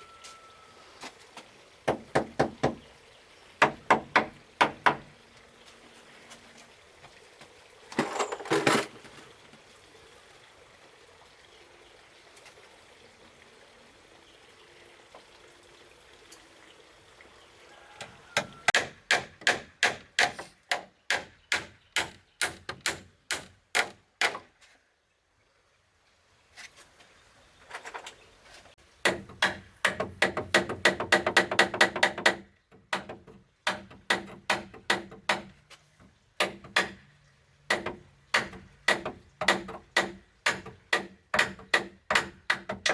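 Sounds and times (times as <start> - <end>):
hammer striking wood: 1.9 - 2.8, 3.6 - 5.1, 18.4 - 24.5, 29.0 - 35.6, 36.4 - 37.0, 37.7 - 42.9.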